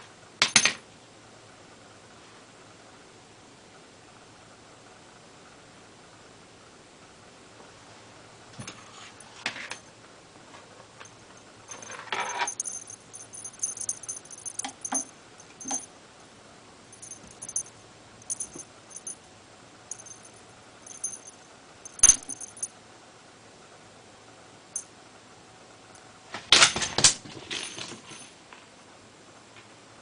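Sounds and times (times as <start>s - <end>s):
small jingle bell jingling: 11.0s - 15.9s, 16.9s - 19.2s, 19.9s - 22.7s.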